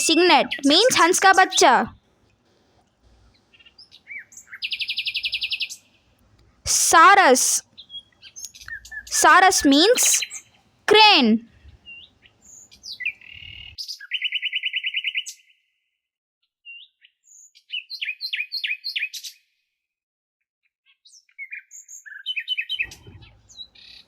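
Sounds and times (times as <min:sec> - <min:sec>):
small songbirds chirping: 0:03.1 - 0:06.1, 0:07.6 - 0:09.4, 0:10.2 - 0:10.6, 0:11.5 - 0:14.3, 0:21.4 - 0:24.0.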